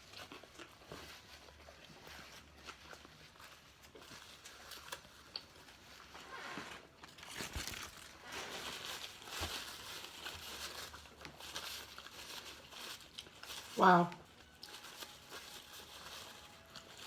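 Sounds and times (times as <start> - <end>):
person chewing: 0.0 - 8.3
wrapper crinkling: 0.0 - 17.0.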